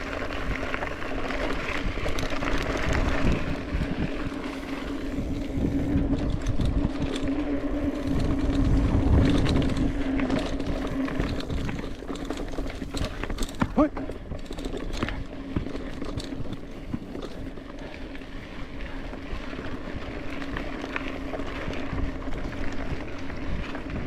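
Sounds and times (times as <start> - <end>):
steady droning hum: 0.0 - 14.4
wind noise: 0.0 - 17.4
bike tyres rumbling: 0.0 - 24.0.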